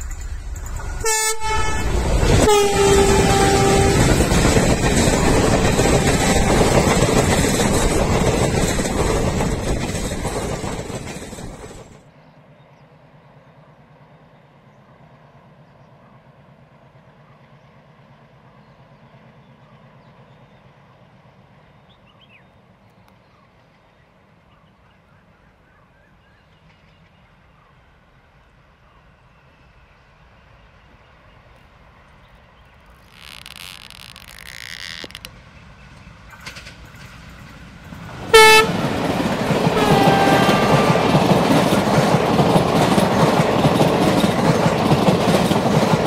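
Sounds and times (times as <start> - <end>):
train rushing past: 0.0 - 12.2, 29.0 - 46.0
distant diesel locomotive rumble: 0.0 - 46.0.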